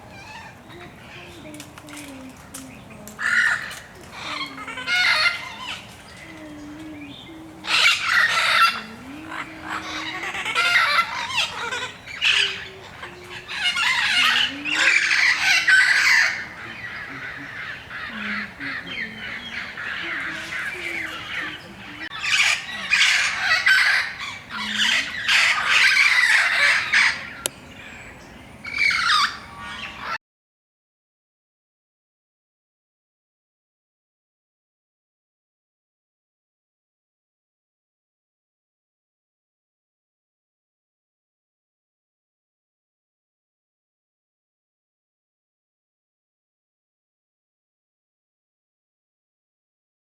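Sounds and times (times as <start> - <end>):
parrots squawking: 3.2 - 6.8, 7.6 - 27.4.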